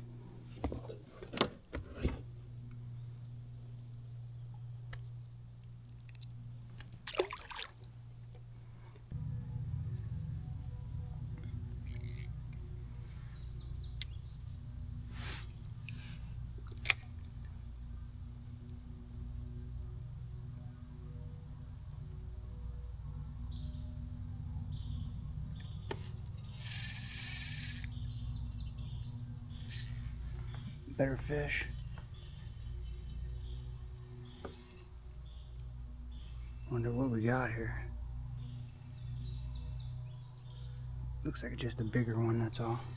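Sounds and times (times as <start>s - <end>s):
insects chirring: 0.0s - 42.9s
sharp clicks and knocks: 0.5s - 2.3s
low rumble: 9.2s - 15.1s
short hiss: 15.1s - 17.2s.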